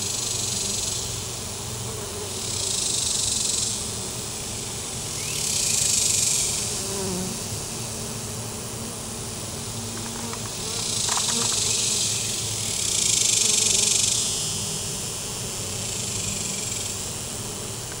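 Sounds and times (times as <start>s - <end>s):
honey bees buzzing: 5.2s - 18.0s.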